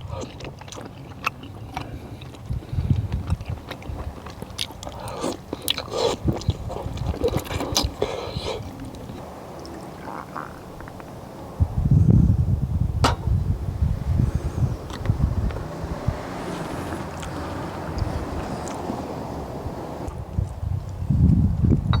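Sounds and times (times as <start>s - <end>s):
person chewing: 0.0s - 11.1s.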